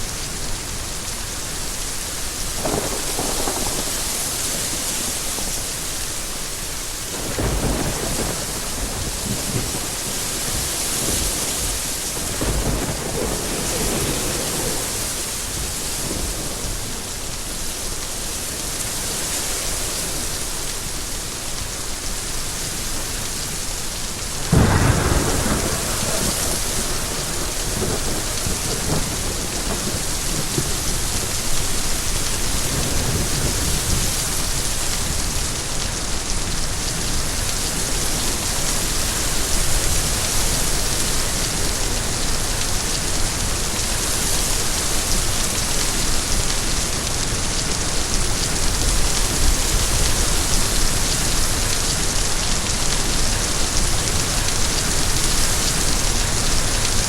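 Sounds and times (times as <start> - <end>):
rain falling: 0.0 - 57.0
thunder rolling: 2.6 - 4.8, 12.2 - 15.2, 24.5 - 31.8.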